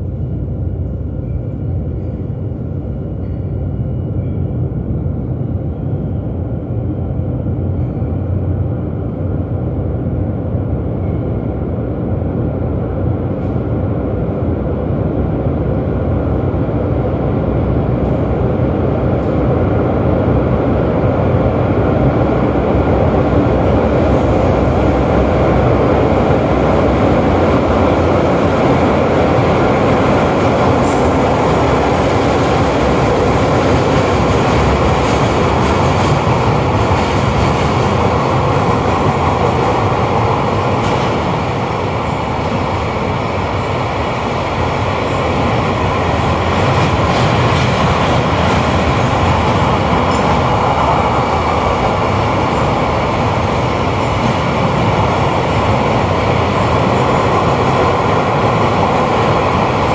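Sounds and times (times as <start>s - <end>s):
train wheels roaring on rail: 0.0s - 59.9s.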